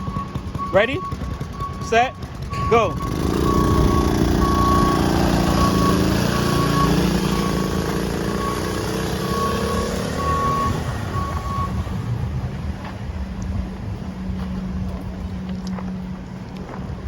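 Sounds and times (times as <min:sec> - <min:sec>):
short high beeps: 0:00.0 - 0:11.8
small motorcycle engine pulling away: 0:00.0 - 0:12.3.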